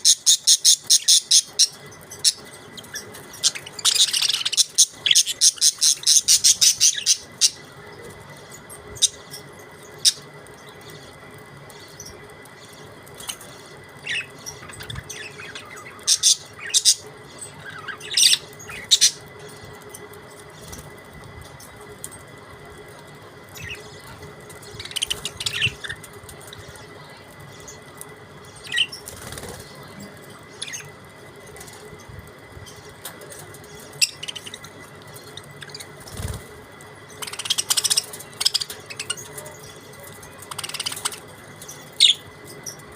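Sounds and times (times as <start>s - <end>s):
budgerigars chirping: 0.0s - 7.6s, 14.0s - 17.0s, 24.7s - 26.0s, 33.9s - 36.4s, 37.2s - 39.4s, 40.4s - 41.2s
faint steady hum: 0.0s - 42.9s.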